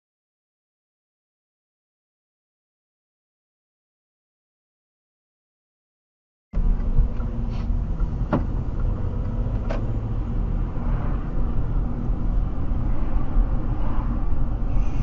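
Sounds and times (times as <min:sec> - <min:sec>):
car engine and road noise: 0:06.6 - 0:15.0.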